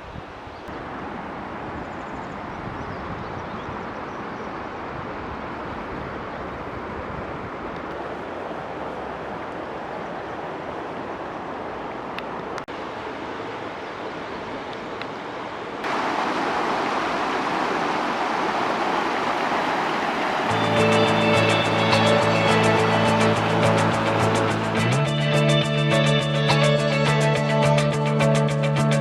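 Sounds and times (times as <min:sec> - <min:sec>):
stream rushing over rocks: 0:00.7 - 0:02.7, 0:04.6 - 0:25.0.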